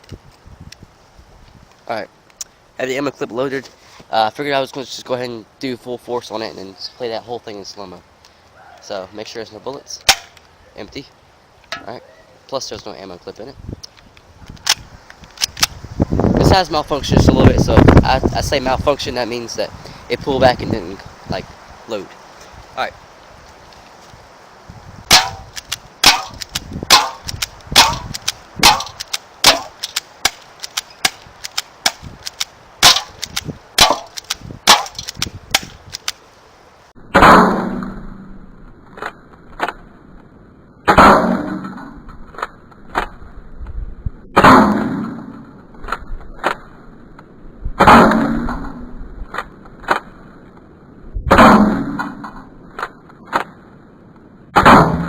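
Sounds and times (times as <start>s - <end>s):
airsoft pistol shots: 10.0s - 10.4s, 25.1s - 36.0s
slowed deep smeared booms: 51.1s - 52.6s, 54.5s - 55.0s.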